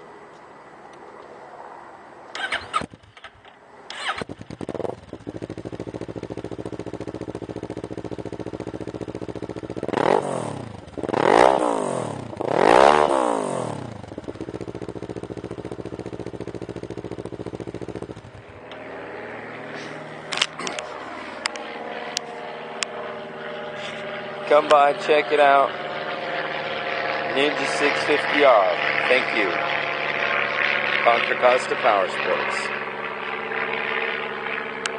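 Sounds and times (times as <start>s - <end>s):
motorcycle engine idling and revving: 2.3s - 34.9s.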